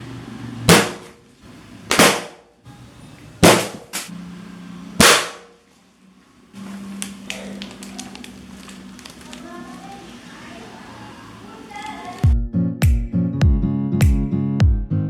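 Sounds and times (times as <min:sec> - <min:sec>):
balloons bursting: 0:00.7 - 0:01.2, 0:01.8 - 0:02.5, 0:03.4 - 0:04.1, 0:05.0 - 0:05.6.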